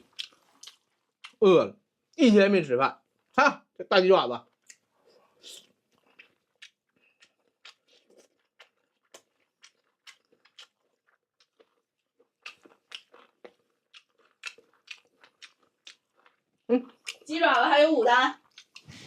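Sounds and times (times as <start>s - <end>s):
person eating crunchy food: 0.0s - 1.4s, 4.5s - 17.3s, 18.4s - 19.0s.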